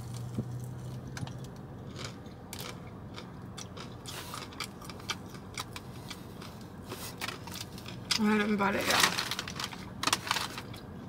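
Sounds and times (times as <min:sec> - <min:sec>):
crunching bites and chewing: 0:00.0 - 0:08.2.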